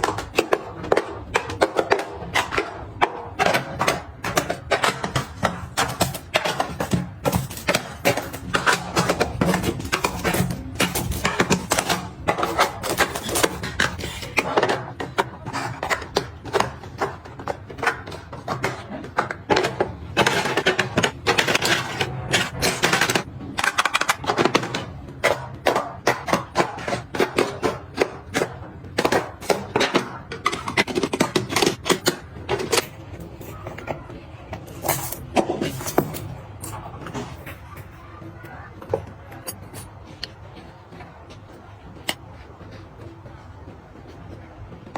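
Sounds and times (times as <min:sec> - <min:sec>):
small hard objects clattering: 0:04.3 - 0:14.4
objects scraping: 0:25.6 - 0:43.4.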